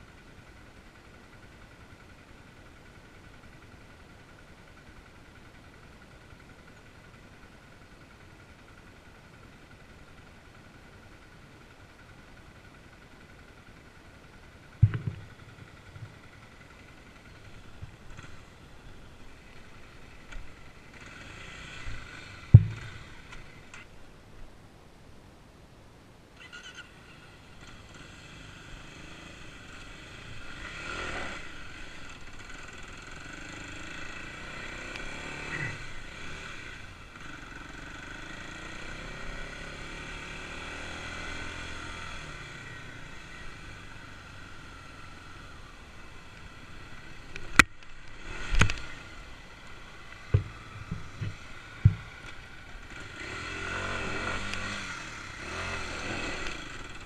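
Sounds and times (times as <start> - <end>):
motorcycle engine revving: 12.4 - 23.9, 26.4 - 57.0
sharp knocks: 14.8 - 16.1, 22.5 - 23.0, 50.3 - 52.1.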